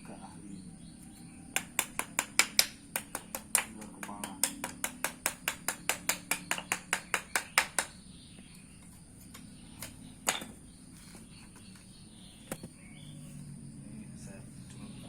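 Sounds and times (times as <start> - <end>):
rapid even tapping: 1.5 - 8.0.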